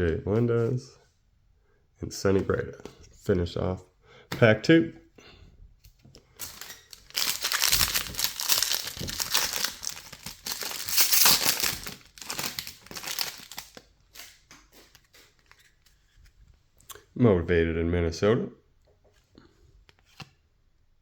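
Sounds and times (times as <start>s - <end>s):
foil wrapper crackling: 6.4s - 15.3s
wrapper tearing: 6.4s - 15.6s.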